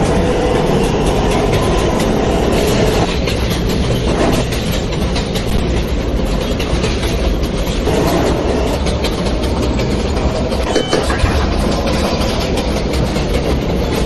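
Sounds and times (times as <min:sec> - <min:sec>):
train wheels rumbling on rails: 0:00.0 - 0:14.0
wheels clicking over rail joints: 0:00.0 - 0:14.0.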